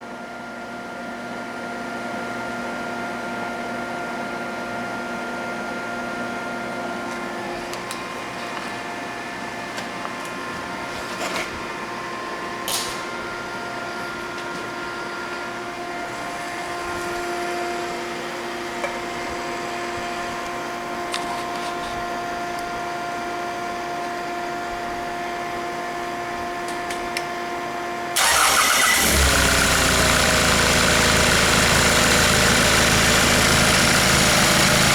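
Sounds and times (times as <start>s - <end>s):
mechanical hum: 0.0s - 31.6s
diesel engine cranking and running: 28.2s - 34.9s.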